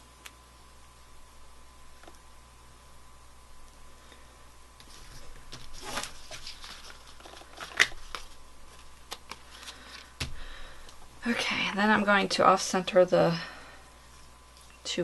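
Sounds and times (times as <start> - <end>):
paper and ribbon rustling: 4.8 - 10.2.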